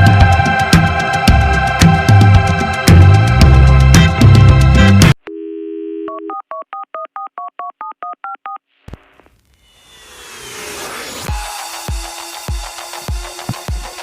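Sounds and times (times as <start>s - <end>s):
music: 0.0s - 5.2s, 11.2s - 14.0s
telephone dial tone: 5.3s - 8.6s
touch-tone dialing beeps: 5.3s - 8.6s
rising whoosh: 9.6s - 11.3s.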